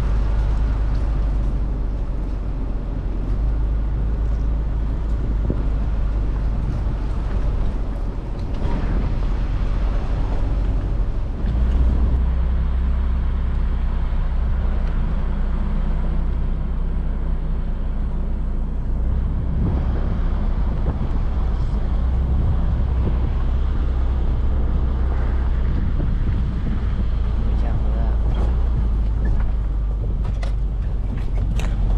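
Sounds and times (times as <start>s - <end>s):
car engine hum: 0.0s - 31.9s
road and tyre noise: 0.0s - 31.9s.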